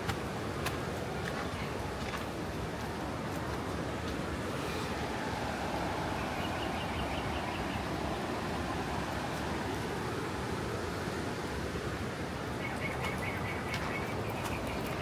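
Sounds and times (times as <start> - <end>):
outdoor rushing noise: 2.4 - 11.9.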